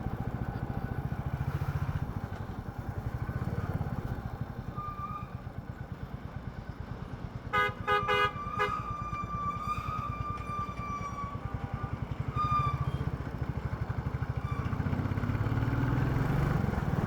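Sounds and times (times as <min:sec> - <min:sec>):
vehicle horn honking: 0:07.5 - 0:09.0
thin steady horn-like tone: 0:07.5 - 0:09.2.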